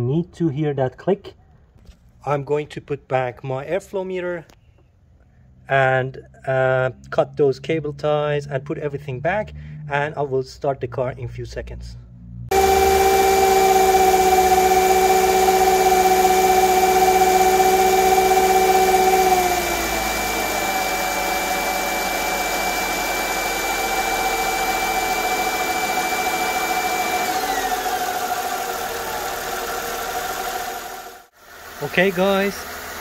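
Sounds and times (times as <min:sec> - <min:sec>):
car engine idling: 0:27.8 - 0:33.0.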